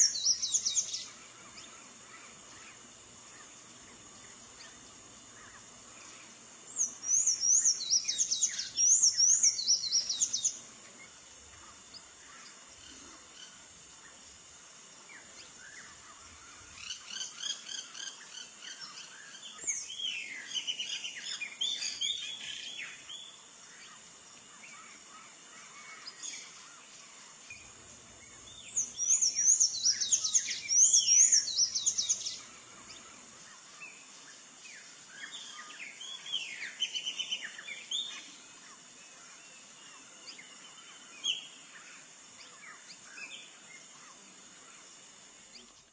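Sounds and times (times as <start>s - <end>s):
steady high hiss: 0.0s - 45.9s.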